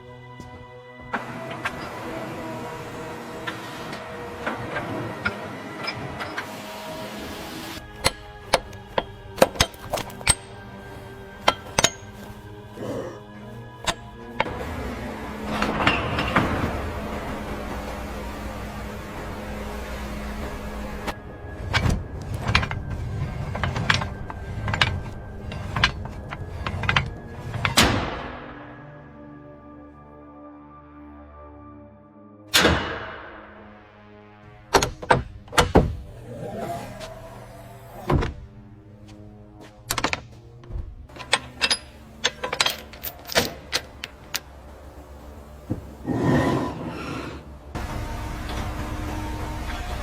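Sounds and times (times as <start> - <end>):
metal tool clanks and clicks: 8.0 - 10.6, 11.4 - 12.3, 41.1 - 44.5.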